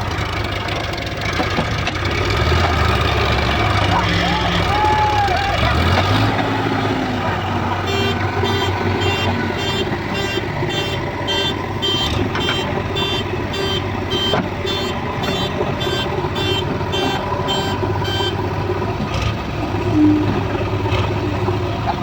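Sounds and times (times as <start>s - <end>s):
diesel engine running: 0.0s - 22.0s
reversing alarm beeping: 5.8s - 18.6s.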